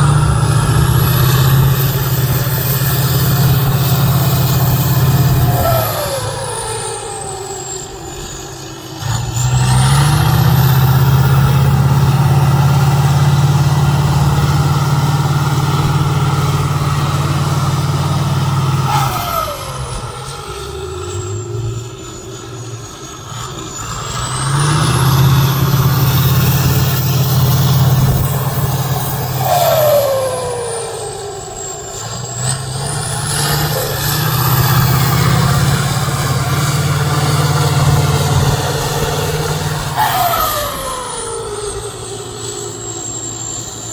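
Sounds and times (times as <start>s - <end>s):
falling engine whine: 0.0s - 43.9s
truck engine working hard: 0.0s - 43.9s.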